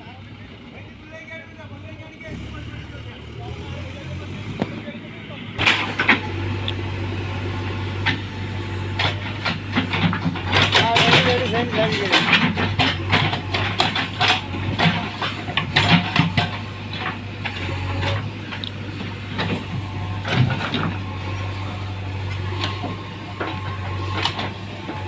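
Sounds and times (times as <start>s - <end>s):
tractor engine droning: 0.0s - 25.0s
knocks and clatter: 5.6s - 25.0s.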